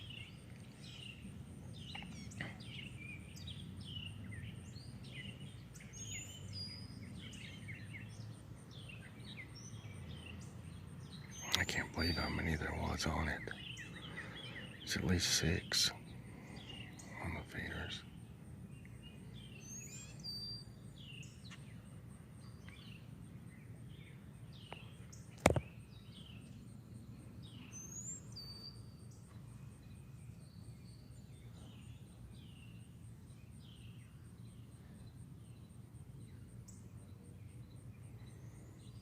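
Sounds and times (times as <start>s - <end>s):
low background hum: 0.0s - 39.0s
songbirds chirping: 0.0s - 39.0s
sharp click: 25.4s - 25.6s.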